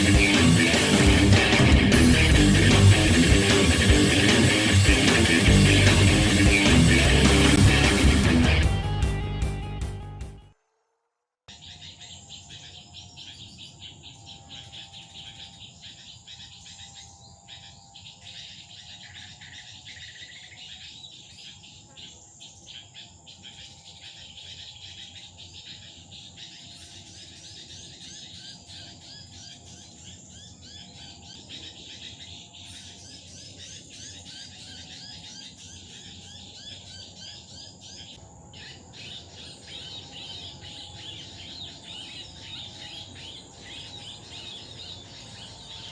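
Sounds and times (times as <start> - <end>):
small birds chirping: 0.0 - 8.6, 11.5 - 45.9
high-pitched insect drone: 11.6 - 45.9.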